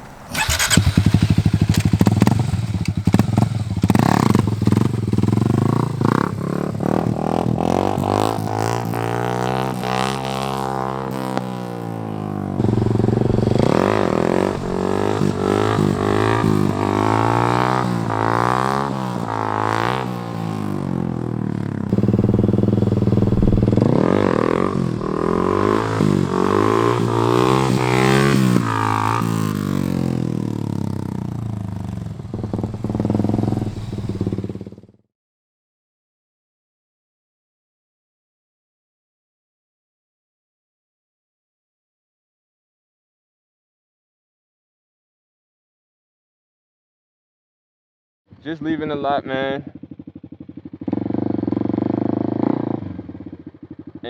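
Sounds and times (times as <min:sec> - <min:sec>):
dirt bike engine revving: 0:00.2 - 0:31.6.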